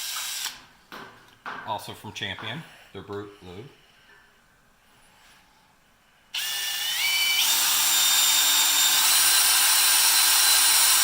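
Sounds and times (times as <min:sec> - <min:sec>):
electric drill boring into steel: 0:00.0 - 0:00.6, 0:06.4 - 0:11.0.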